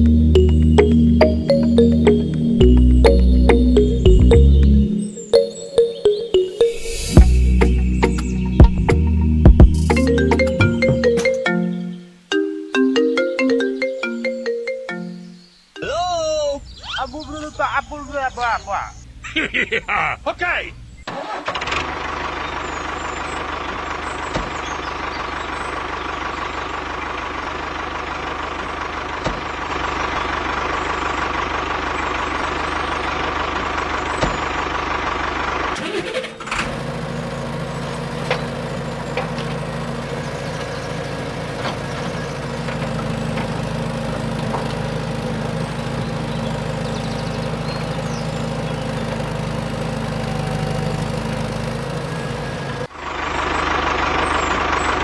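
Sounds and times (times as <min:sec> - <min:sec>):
low motor hum: 0:00.0 - 0:05.4, 0:06.3 - 0:11.2, 0:36.6 - 0:55.0
small motor whine: 0:31.8 - 0:54.6.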